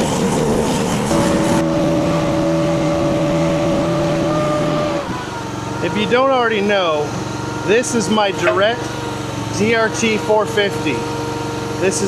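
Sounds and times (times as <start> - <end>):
engine running: 0.0 - 12.0
even hum: 0.0 - 12.0.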